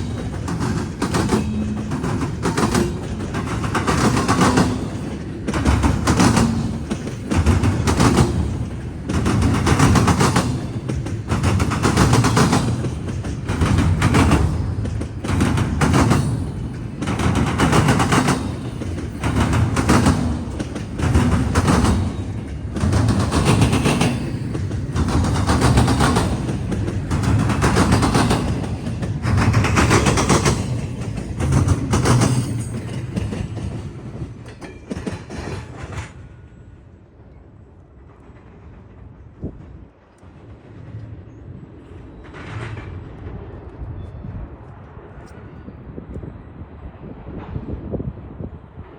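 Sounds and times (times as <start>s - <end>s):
train wheels banging over crossing: 0.0s - 36.7s
train rolling rumble: 0.0s - 48.9s.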